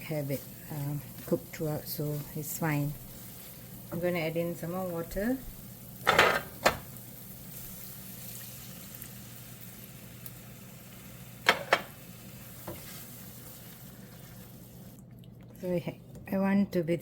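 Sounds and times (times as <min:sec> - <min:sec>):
sauce sizzling in a pan: 0:00.0 - 0:15.0.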